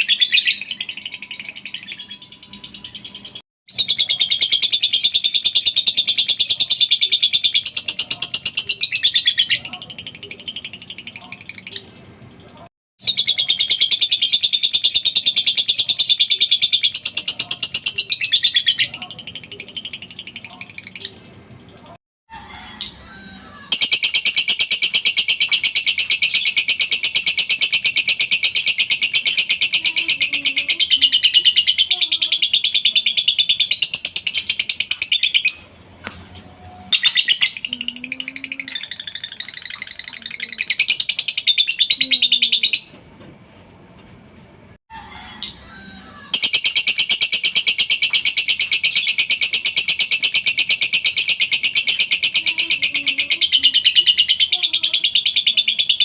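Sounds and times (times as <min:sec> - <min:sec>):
lovebird chattering trill: 0:23.6 - 0:35.7, 0:36.9 - 0:42.9, 0:46.2 - 0:56.0.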